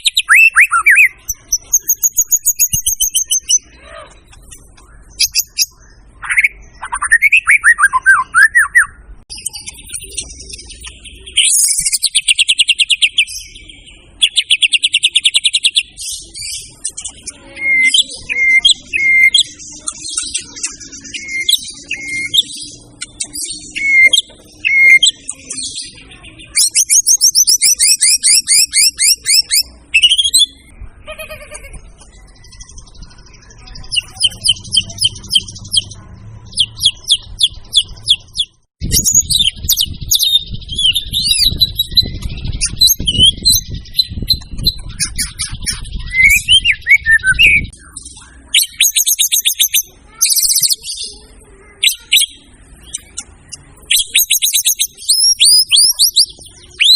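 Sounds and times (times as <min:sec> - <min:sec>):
songbird singing whistles and trills: 0:00.0 - 0:30.7, 0:36.5 - 0:51.0, 0:51.8 - 0:56.9.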